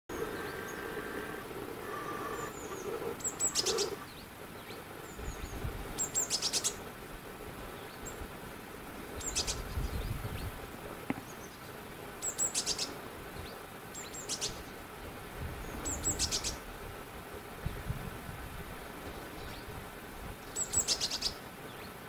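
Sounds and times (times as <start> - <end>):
small bird calling: 0.1 - 6.9, 9.1 - 14.7, 15.6 - 16.6, 20.5 - 22.0.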